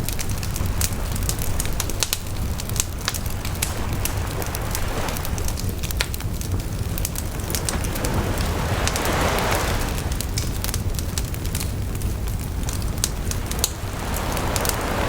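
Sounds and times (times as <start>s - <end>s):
campfire crackling and popping: 0.0s - 15.0s
sea waves: 0.0s - 15.0s.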